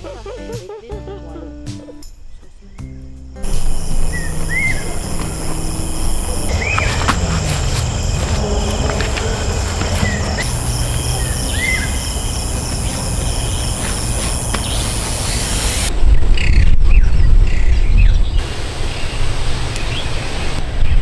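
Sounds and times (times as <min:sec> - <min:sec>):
insects trilling: 0:03.4 - 0:15.9
bird chirps: 0:03.4 - 0:18.4.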